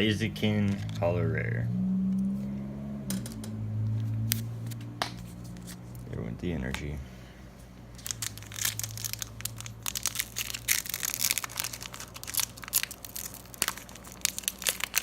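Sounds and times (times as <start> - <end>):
plastic and foil packaging crackling: 7.9 - 15.0.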